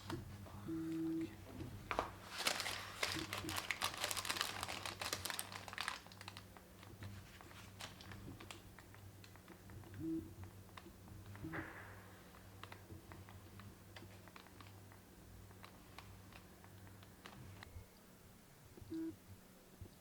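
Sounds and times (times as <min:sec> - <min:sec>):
steady low hum: 0:00.0 - 0:20.0
material crinkling and crumpling: 0:01.9 - 0:09.6.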